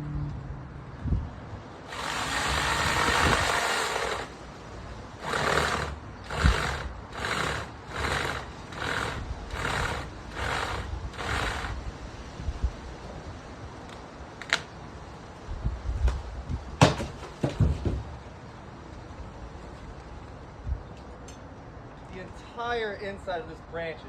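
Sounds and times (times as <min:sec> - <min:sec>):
saw cutting tree branch: 0:01.9 - 0:04.5, 0:05.2 - 0:11.9.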